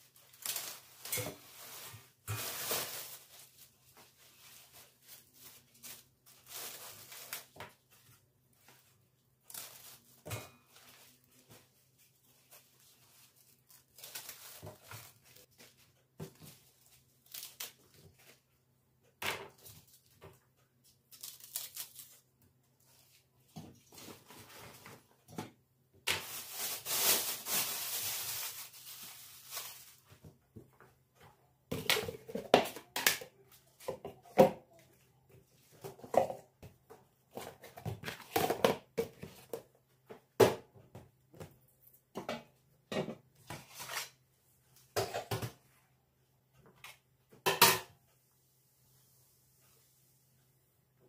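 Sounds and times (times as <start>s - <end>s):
rustling: 0.0s - 18.4s, 26.1s - 30.3s.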